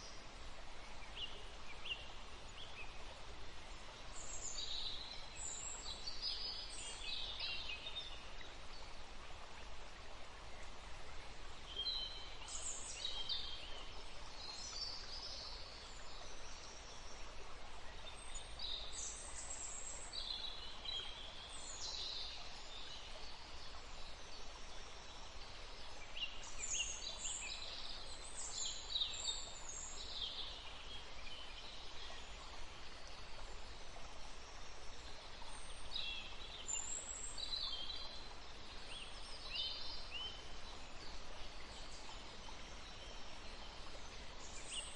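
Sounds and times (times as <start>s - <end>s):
woodland stream rushing: 0.0s - 44.9s.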